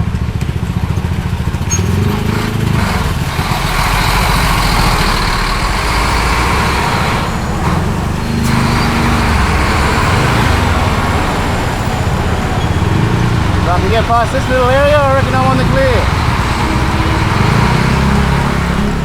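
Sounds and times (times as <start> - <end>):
motorcycle engine rumbling: 0.0 - 19.0
surrounding traffic noise: 0.0 - 19.0.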